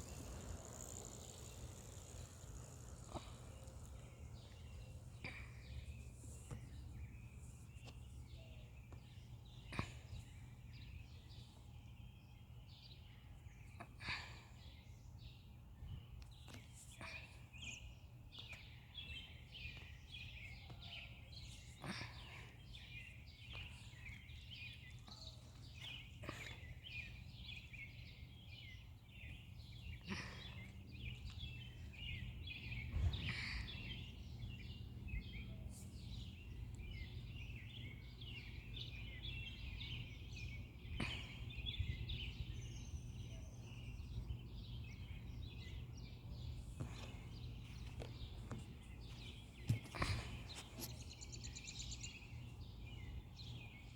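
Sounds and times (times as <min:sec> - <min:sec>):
low background rumble: 0:00.0 - 0:08.2
small birds chirping: 0:00.0 - 0:53.9.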